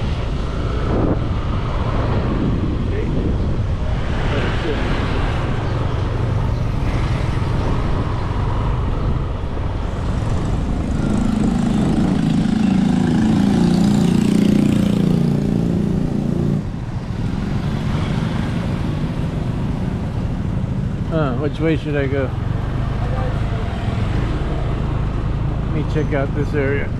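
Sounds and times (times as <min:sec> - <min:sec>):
motorcycle engine running: 0:06.0 - 0:21.4.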